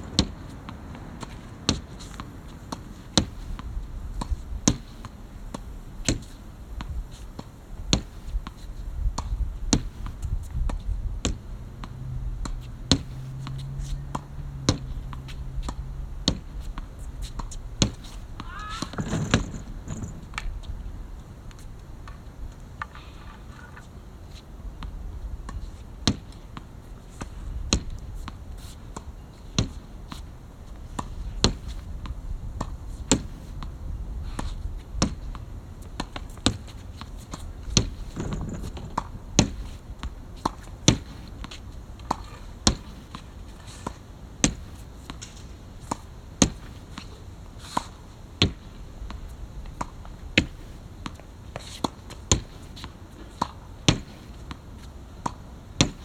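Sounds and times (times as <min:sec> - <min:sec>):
racket striking shuttlecock: 0:10.8 - 0:22.2.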